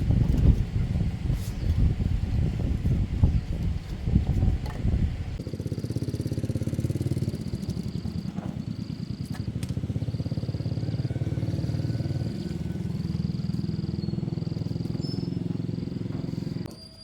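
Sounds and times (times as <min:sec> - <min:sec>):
car engine running: 0:07.4 - 0:16.7.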